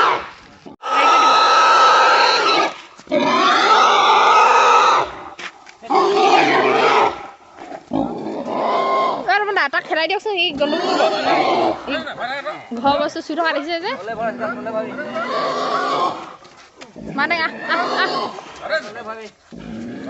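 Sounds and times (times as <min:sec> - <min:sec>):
pig squealing: 0:00.0 - 0:05.2, 0:05.9 - 0:09.4, 0:10.5 - 0:12.2, 0:14.2 - 0:16.4, 0:17.0 - 0:18.6.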